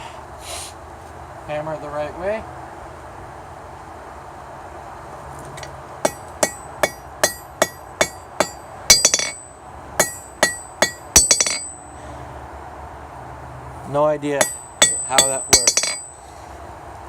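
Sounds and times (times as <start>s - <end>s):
hammer striking hot metal bar: 5.6s - 11.9s, 14.4s - 16.2s.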